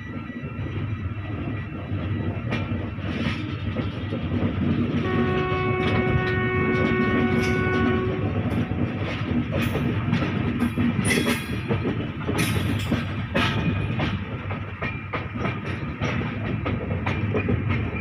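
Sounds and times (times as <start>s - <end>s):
train wheels rumbling on rails: 0.0s - 18.0s
train horn long note: 5.0s - 8.8s.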